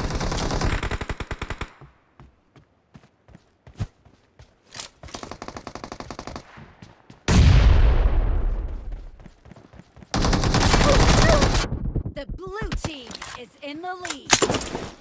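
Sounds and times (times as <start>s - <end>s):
loud explosion with deep rumble: 7.3s - 8.8s.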